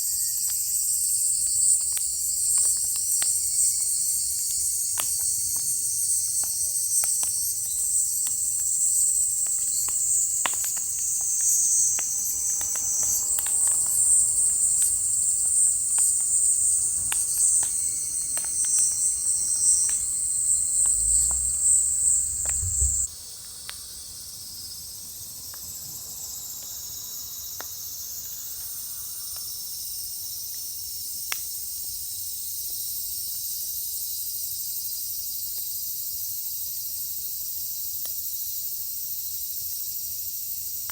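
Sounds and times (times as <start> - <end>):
firewood crackling: 0.5 - 23.1
high-pitched background hiss: 3.1 - 29.9.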